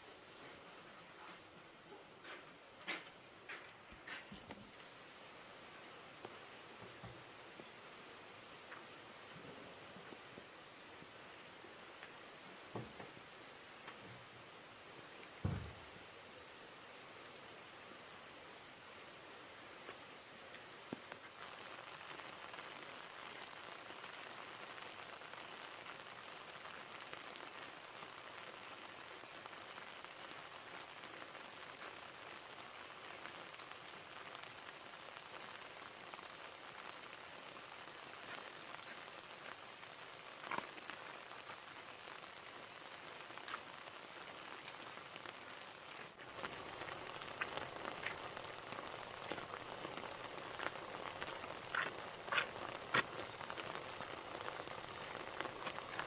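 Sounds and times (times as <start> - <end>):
rain hissing: 0.0 - 56.0
raindrops ticking: 19.8 - 56.0.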